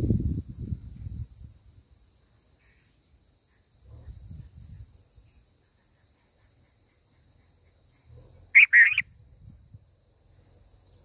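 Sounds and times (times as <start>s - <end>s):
bird call: 8.0s - 9.1s.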